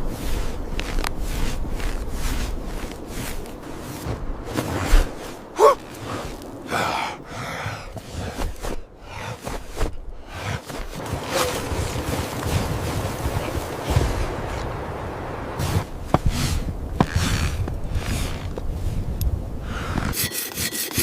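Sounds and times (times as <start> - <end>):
rustling: 0.0 - 14.7
person gasping: 5.6 - 9.6.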